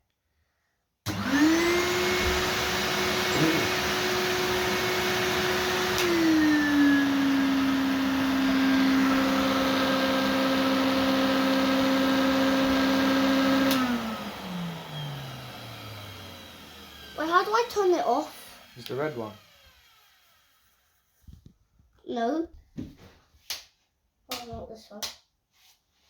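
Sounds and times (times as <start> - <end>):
vacuum cleaner motor whine: 1.1 - 20.8
vacuum switch click: 5.8 - 6.5, 13.6 - 14.0.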